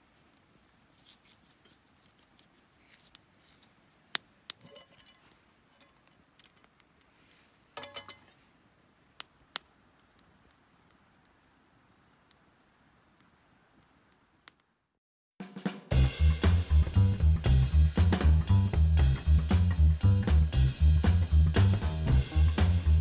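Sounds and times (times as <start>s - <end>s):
soft rustling: 0.0s - 3.9s, 4.6s - 8.6s.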